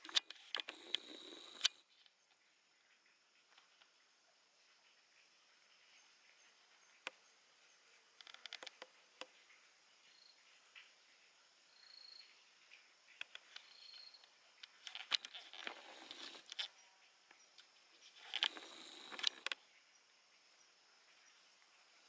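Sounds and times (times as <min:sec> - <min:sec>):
faint sharp clicks: 0:12.2 - 0:19.6.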